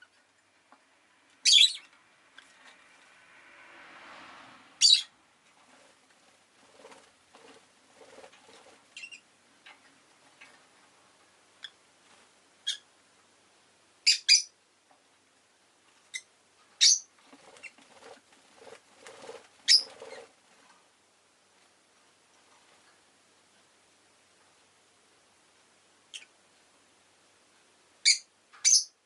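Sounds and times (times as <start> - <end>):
bird chirping: 1.4 - 2.0, 4.8 - 5.1, 8.2 - 9.3, 12.6 - 12.9, 14.0 - 14.6, 16.1 - 18.0, 19.2 - 20.3, 26.1 - 26.4, 28.0 - 29.0.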